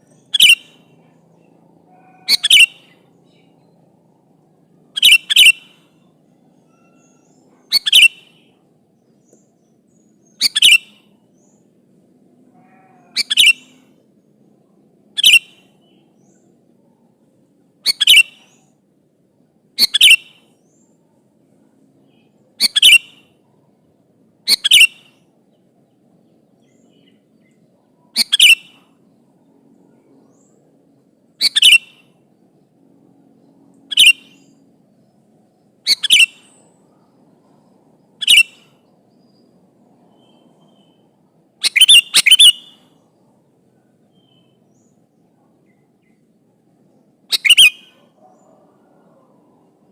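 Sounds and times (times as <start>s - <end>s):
bird sharp double-note calls: 38.2s - 38.7s, 41.6s - 42.9s, 47.3s - 47.9s.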